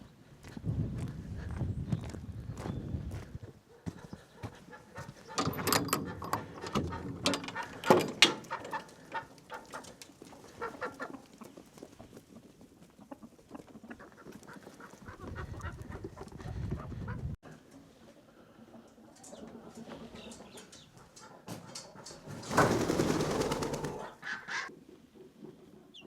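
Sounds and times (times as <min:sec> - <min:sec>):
chickens calling: 0:01.4 - 0:26.0.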